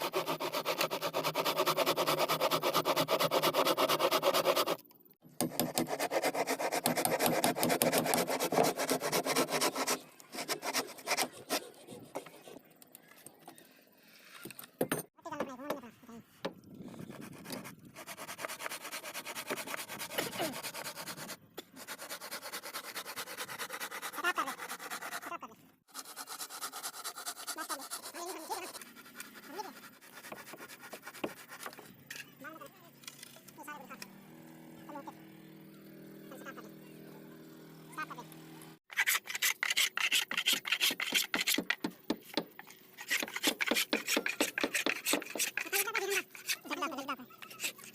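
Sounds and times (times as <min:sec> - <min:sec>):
hand tool scraping wood: 0:00.0 - 0:12.7, 0:17.0 - 0:25.3, 0:26.0 - 0:32.3, 0:38.9 - 0:47.9
rapid scraping on wood: 0:05.4 - 0:12.7, 0:38.9 - 0:46.8, 0:47.4 - 0:47.9.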